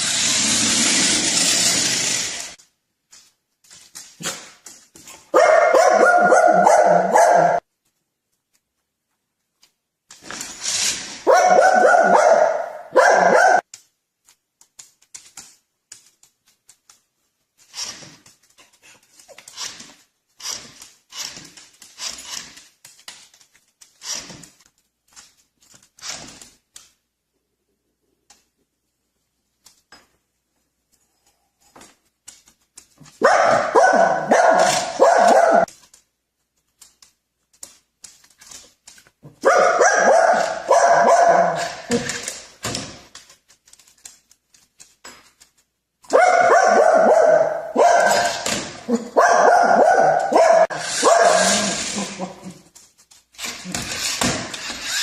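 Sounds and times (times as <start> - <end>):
dog barking: 5.3 - 7.6, 11.2 - 13.6, 33.2 - 35.7, 39.4 - 42.0, 46.1 - 52.4.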